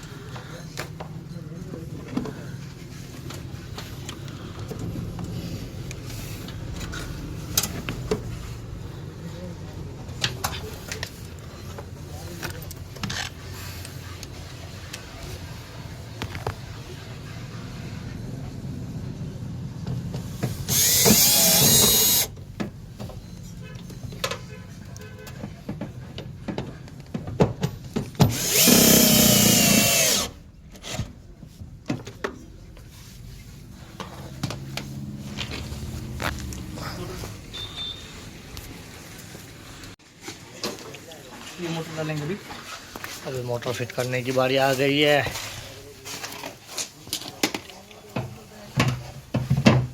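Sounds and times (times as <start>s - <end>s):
power drill running: 20.7s - 22.3s, 28.3s - 30.4s.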